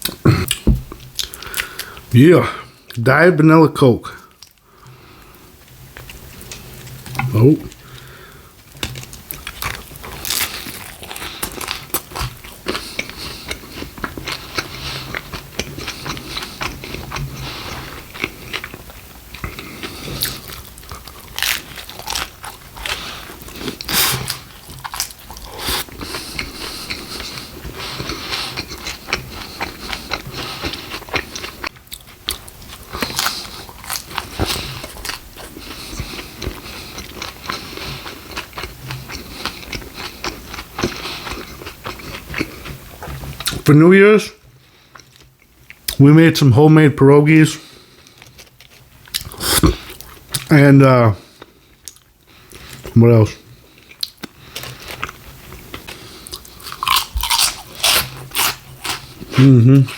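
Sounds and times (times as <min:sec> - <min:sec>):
person biting and chewing food: 0:00.0 - 0:02.0, 0:08.8 - 0:43.6, 0:48.0 - 0:50.5, 0:53.8 - 0:59.9
crisp food crunches: 0:19.9 - 0:27.4, 0:53.9 - 0:59.9.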